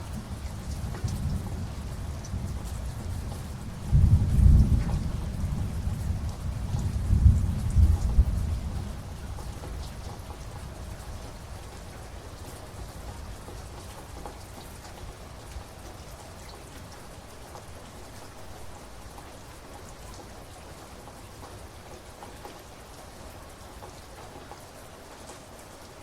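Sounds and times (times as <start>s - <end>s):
low thunder rumble: 0.0s - 11.6s
steady rain falling: 0.0s - 26.0s.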